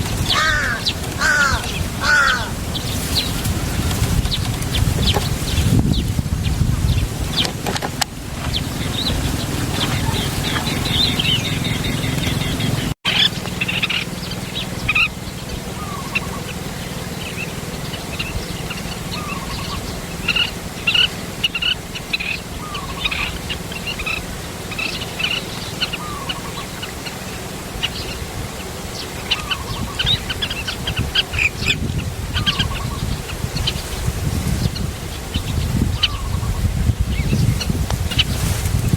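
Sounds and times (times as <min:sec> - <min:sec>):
high bird chirps: 0:08.4 - 0:28.2.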